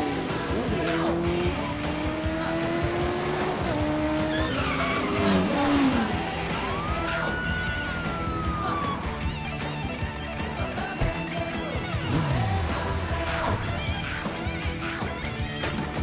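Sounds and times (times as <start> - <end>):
background film music: 0.0 - 16.0
car engine revving: 0.0 - 16.0
tyres squealing: 3.3 - 15.0.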